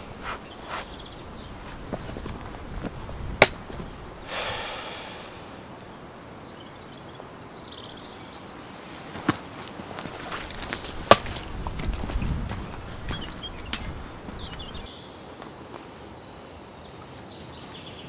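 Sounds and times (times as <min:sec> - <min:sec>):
bird chirping faintly: 0:00.0 - 0:02.8, 0:12.1 - 0:18.0.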